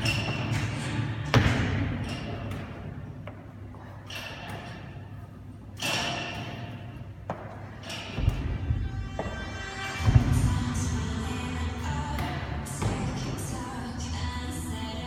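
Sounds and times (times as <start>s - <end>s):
equipment thudding: 5.8s - 11.1s, 11.8s - 13.4s.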